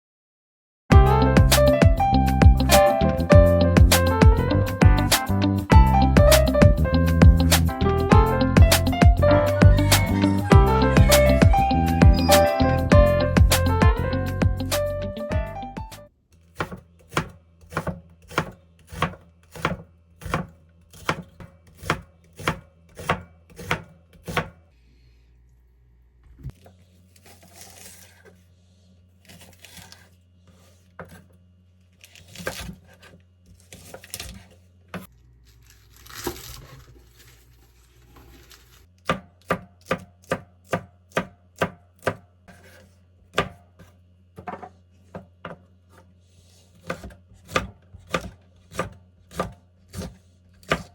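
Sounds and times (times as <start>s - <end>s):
knife chopping on cutting board: 16.5s - 24.6s, 39.0s - 46.1s, 46.7s - 50.9s.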